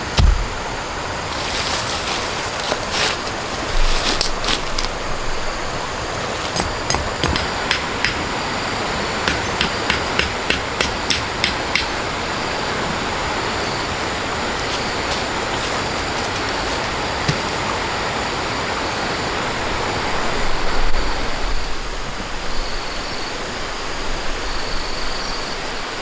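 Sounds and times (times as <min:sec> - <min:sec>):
sharp knocks: 0:00.1 - 0:00.7, 0:06.5 - 0:08.6, 0:09.2 - 0:12.0.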